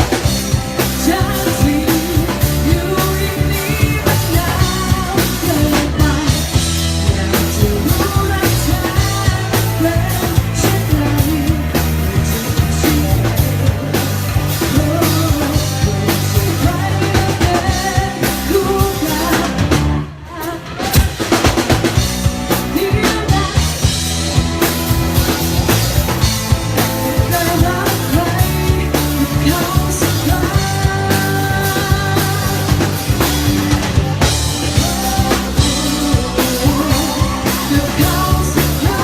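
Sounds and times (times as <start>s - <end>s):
person singing: 0.0s - 21.4s, 22.5s - 39.0s
bass guitar: 0.0s - 39.0s
drum kit: 0.0s - 39.0s
live band playing pop-rock ballad: 0.0s - 39.0s.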